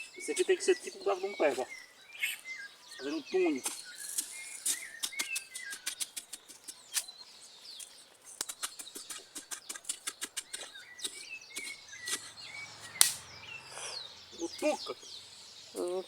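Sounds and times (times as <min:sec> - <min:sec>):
birds chirping faintly: 0:00.0 - 0:16.0
tool scraping damp soil: 0:03.6 - 0:07.1, 0:07.8 - 0:14.0.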